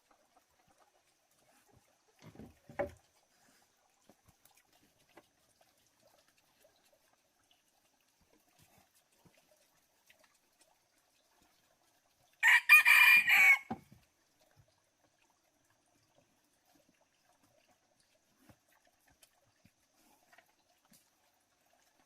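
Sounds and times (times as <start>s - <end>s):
rooster crowing: 12.4s - 13.8s.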